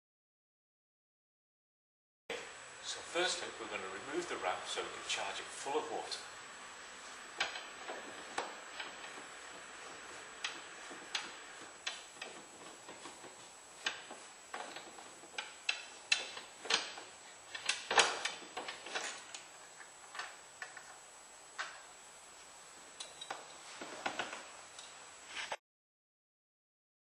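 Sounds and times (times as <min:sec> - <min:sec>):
clicks and knocks of hard parts: 0:07.3 - 0:20.9.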